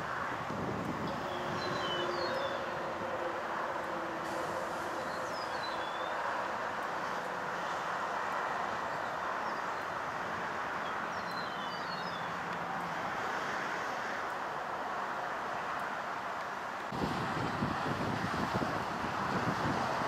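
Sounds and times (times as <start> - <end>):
outdoor rushing noise: 0.0 - 20.0
bird chirps: 1.2 - 2.7, 5.0 - 6.2, 10.8 - 12.4.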